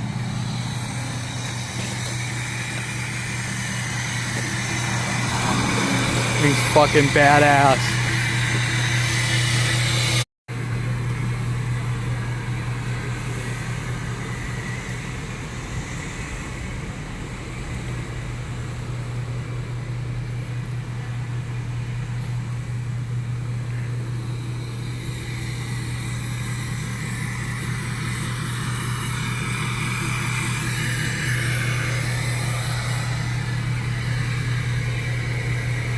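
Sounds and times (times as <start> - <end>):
vehicle engine running steadily: 0.0 - 35.9.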